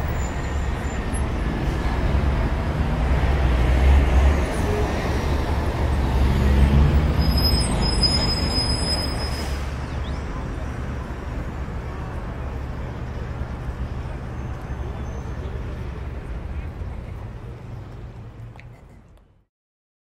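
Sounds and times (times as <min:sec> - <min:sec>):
road traffic rumble: 0:00.0 - 0:19.5.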